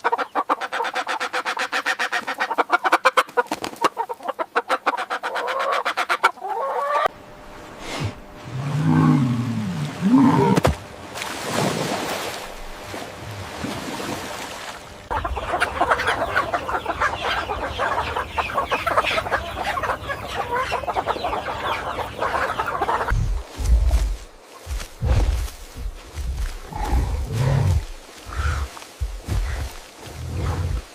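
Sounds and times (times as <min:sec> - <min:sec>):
chickens clucking: 0:00.0 - 0:07.1, 0:15.0 - 0:24.0.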